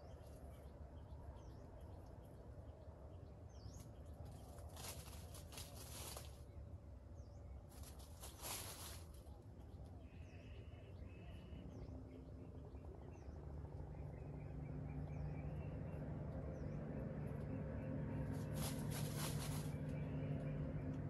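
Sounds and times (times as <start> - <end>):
faint bird chirps: 0.0 - 16.8
rustle: 3.7 - 6.6, 7.6 - 9.5, 18.2 - 20.0
low steady drone: 9.3 - 21.0.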